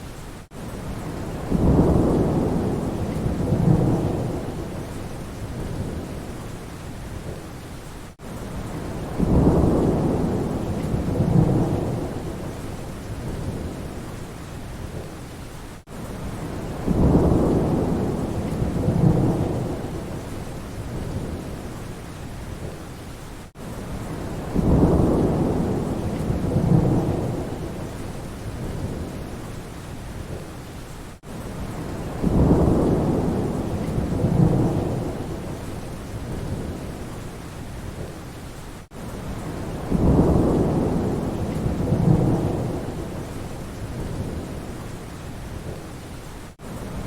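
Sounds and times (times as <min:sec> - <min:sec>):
steady rain: 0:00.0 - 0:47.0
rolling thunder: 0:00.9 - 0:06.3, 0:08.6 - 0:14.0, 0:16.2 - 0:21.7, 0:23.9 - 0:29.3, 0:31.2 - 0:37.0, 0:39.3 - 0:44.7.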